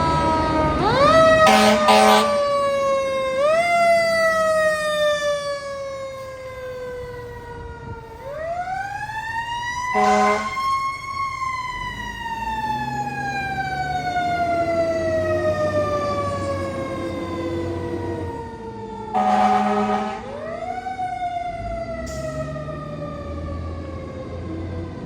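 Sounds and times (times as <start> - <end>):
fire engine siren winding: 0.0 - 25.0
air horn blast: 1.4 - 2.4, 10.0 - 10.6, 19.2 - 20.3.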